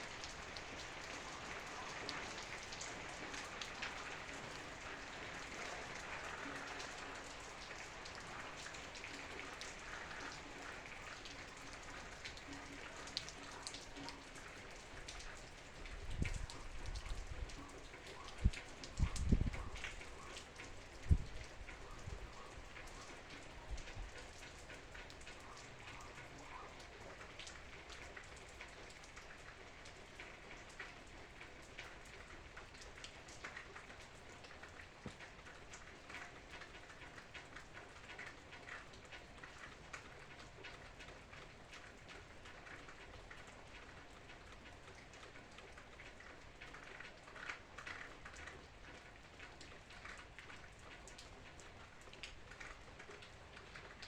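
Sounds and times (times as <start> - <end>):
rain drops ticking on a surface: 0.0 - 54.0.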